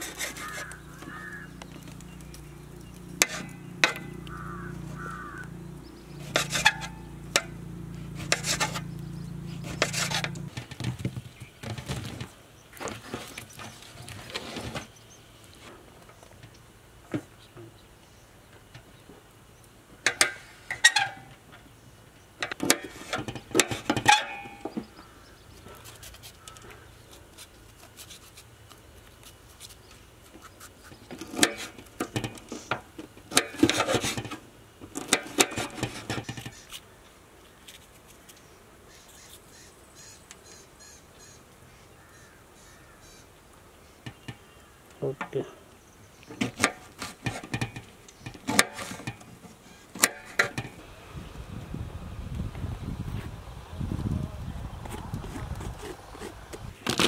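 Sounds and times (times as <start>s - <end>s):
birds calling harshly: 0.0s - 15.5s, 24.1s - 27.3s, 35.6s - 46.7s, 47.8s - 50.8s
faint high bird chirps: 38.4s - 43.3s.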